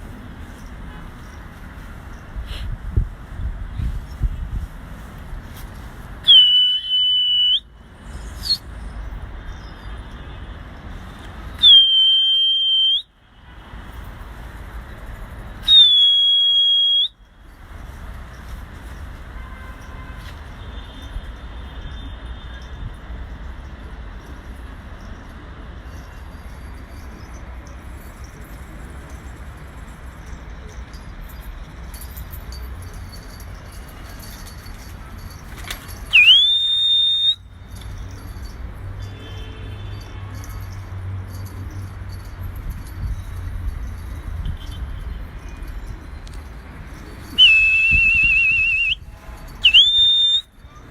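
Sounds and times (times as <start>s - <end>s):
steady background noise: 0.0s - 50.9s
sharp whistle blasts: 6.2s - 8.9s, 11.6s - 13.1s, 15.6s - 17.3s, 36.1s - 37.5s, 47.3s - 50.5s.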